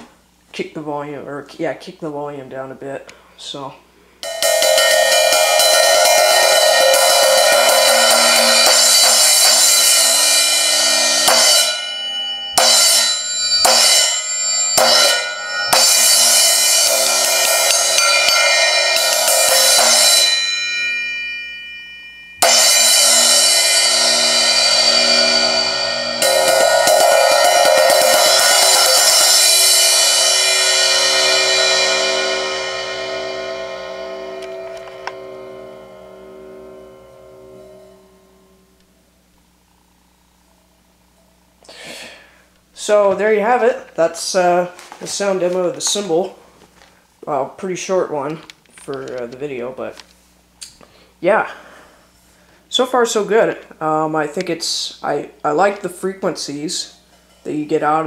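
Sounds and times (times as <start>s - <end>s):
short cymbal hits: 4.2s - 39.3s
crash cymbal ringing: 4.2s - 40.0s.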